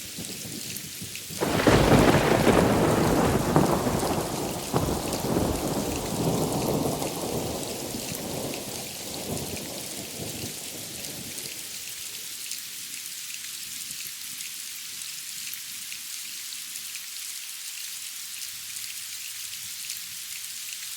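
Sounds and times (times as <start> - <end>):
heavy rain pattering: 0.0 - 12.6
thunder rolling: 1.4 - 11.4.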